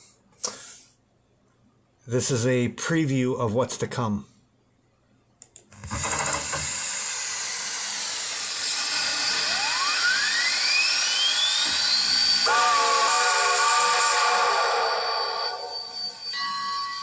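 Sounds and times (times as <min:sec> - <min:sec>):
clicks: 0:05.4 - 0:06.7
steam hissing: 0:06.6 - 0:17.0
thin rising whine: 0:08.3 - 0:17.0
chime steam whistle: 0:08.7 - 0:17.0.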